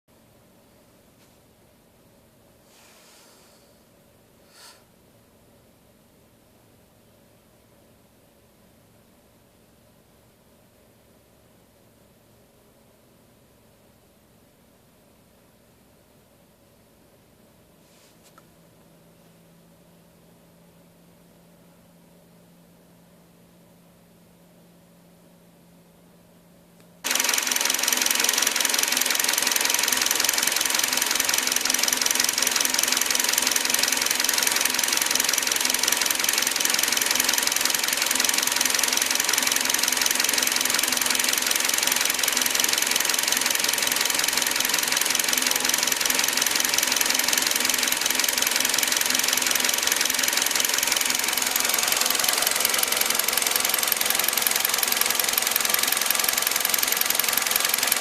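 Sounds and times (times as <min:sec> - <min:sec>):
car engine ticking clatter: 0:27.1 - 0:58.0.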